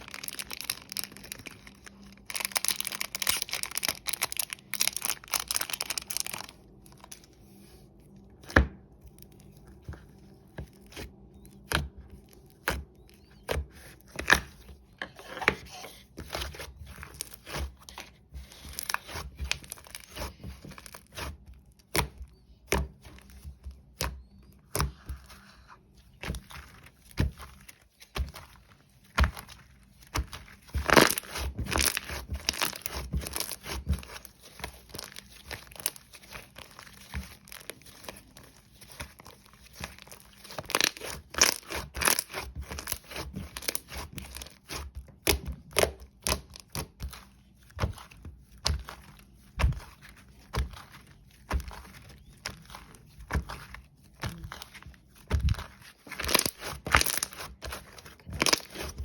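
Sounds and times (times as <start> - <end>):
paper crinkling and rustling: 0.0 - 8.2, 25.1 - 59.0.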